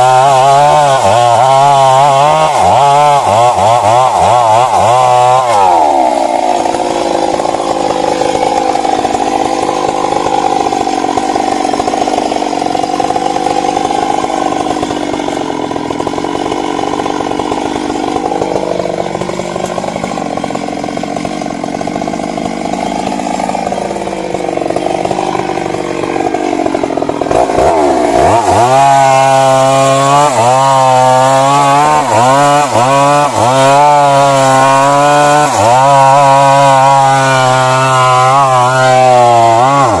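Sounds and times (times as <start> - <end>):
chainsaw cutting wood: 0.0 - 40.0
chainsaw revving: 0.0 - 40.0.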